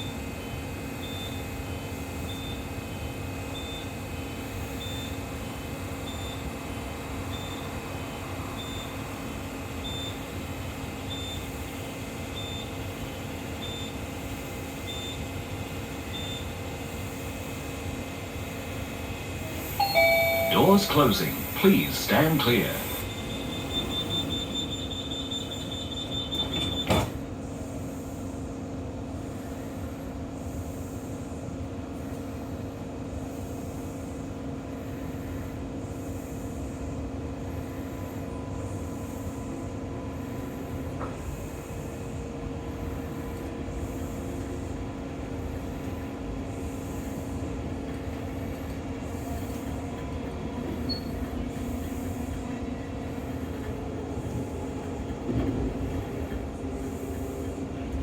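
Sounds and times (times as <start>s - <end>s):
electric train motor hum: 17.9s - 27.4s
high door warning tone: 19.8s - 27.2s
train doors shutting thump: 22.4s - 27.4s, 40.9s - 41.3s, 53.5s - 56.5s.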